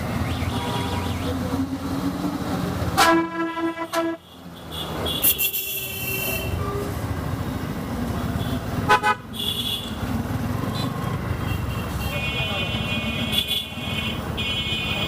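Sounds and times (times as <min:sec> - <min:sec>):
engine and road noise: 0:00.0 - 0:15.0
vehicle horn honking: 0:03.0 - 0:04.2.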